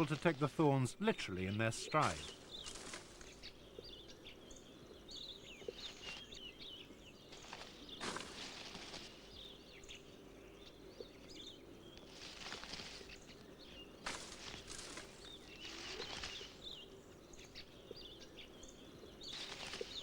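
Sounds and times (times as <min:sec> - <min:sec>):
small birds chirping: 0:00.0 - 0:20.0
rustling bursts: 0:14.0 - 0:16.6.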